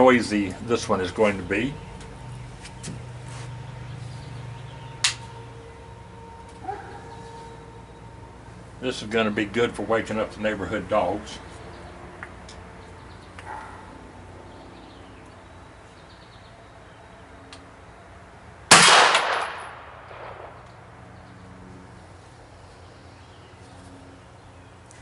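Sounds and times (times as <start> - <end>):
gunshot with ringing tail: 18.7 - 20.6.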